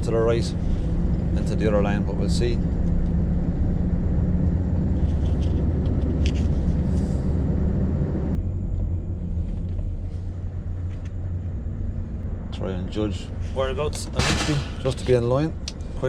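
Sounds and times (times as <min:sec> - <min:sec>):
lorry engine running: 0:00.0 - 0:14.9.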